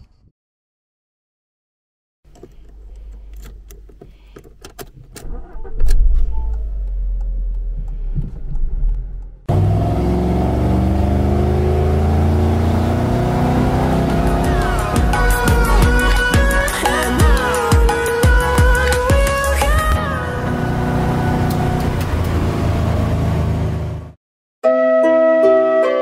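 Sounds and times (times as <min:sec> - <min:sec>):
car engine starting: 0:02.3 - 0:24.2
car driving from inside cabin: 0:05.2 - 0:16.8, 0:18.6 - 0:24.1.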